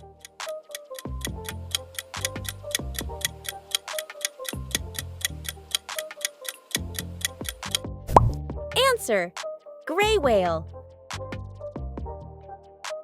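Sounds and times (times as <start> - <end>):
clock ticking rapidly: 0.0 - 7.9
light background music: 0.0 - 13.0.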